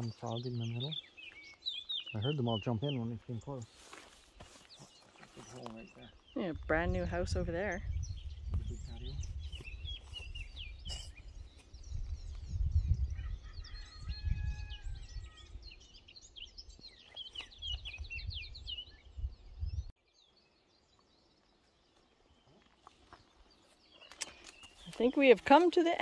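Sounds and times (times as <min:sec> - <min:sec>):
small birds chirping: 0:00.0 - 0:26.0
wind buffeting microphone: 0:06.0 - 0:16.8, 0:17.4 - 0:19.9.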